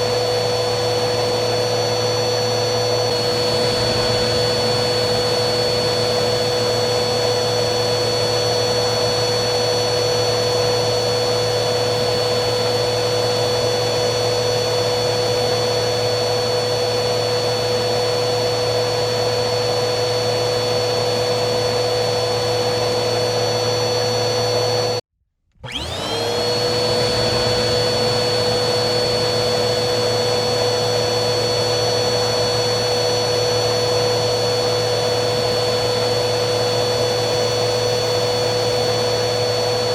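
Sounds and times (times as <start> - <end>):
vacuum cleaner motor whining: 0.0 - 39.9.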